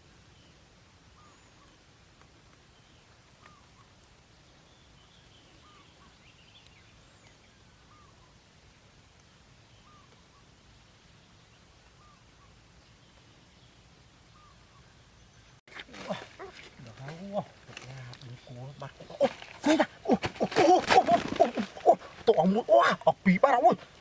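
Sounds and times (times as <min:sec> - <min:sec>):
distant bird calling: 0:15.7 - 0:24.0.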